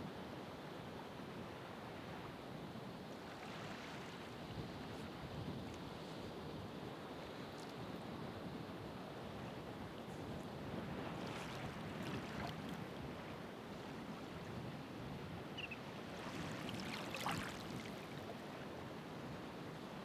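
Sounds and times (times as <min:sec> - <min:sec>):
ocean waves breaking: 0:15.6 - 0:18.2.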